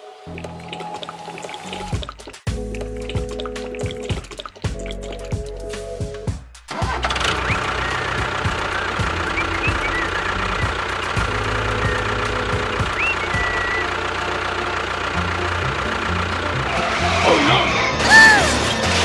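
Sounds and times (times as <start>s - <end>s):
engine running with knocking rattle: 6.7s - 19.0s.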